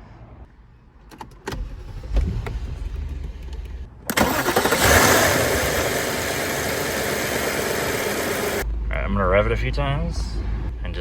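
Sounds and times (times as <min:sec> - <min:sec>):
car engine starting and idling: 0:01.0 - 0:08.6.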